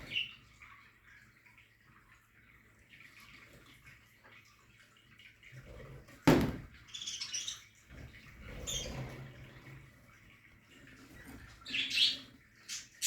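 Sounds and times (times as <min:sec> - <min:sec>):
loud thump: 0:06.3 - 0:06.7
budgerigars chirping: 0:11.6 - 0:13.0.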